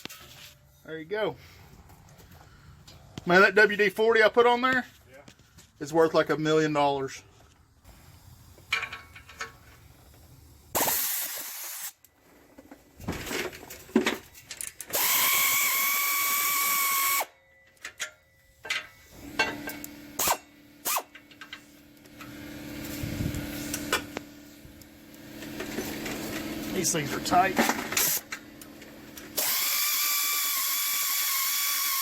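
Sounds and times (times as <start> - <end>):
pneumatic air ratchet: 8.0 - 12.0, 14.8 - 17.3, 19.1 - 24.1, 27.7 - 28.4, 29.2 - 32.0.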